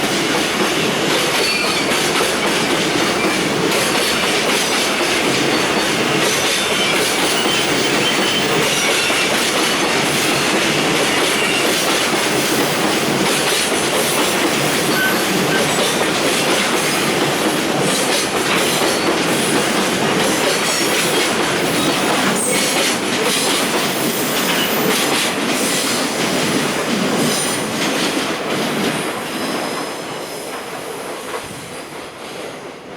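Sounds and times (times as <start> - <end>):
train wheels rolling on rails: 0.0 - 32.9
wheel squeal: 6.6 - 9.3, 14.6 - 15.8.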